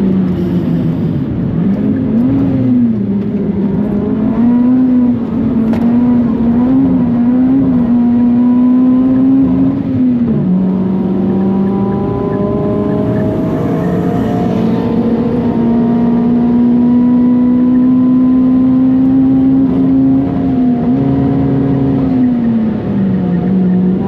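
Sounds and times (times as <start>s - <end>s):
car engine running hard: 0.0s - 24.0s.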